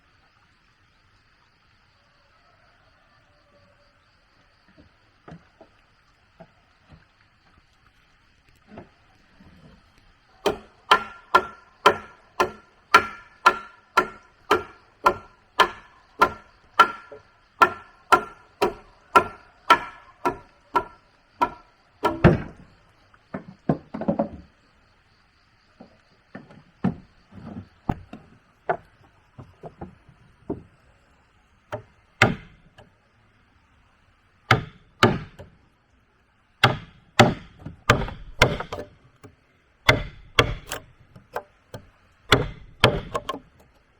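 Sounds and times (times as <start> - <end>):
tool striking wood: 10.4 - 22.6, 31.7 - 32.9, 34.5 - 35.6, 36.6 - 39.3, 39.9 - 43.8.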